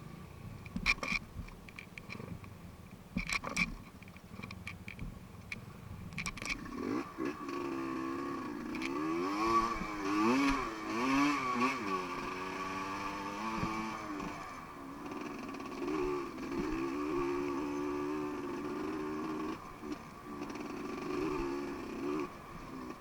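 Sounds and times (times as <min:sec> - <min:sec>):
dirt bike engine revving: 0:06.5 - 0:23.0.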